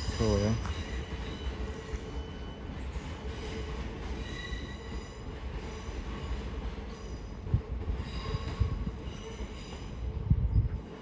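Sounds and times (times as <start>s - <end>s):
train wheels squealing: 0.0s - 10.8s
train rumble: 0.0s - 11.0s.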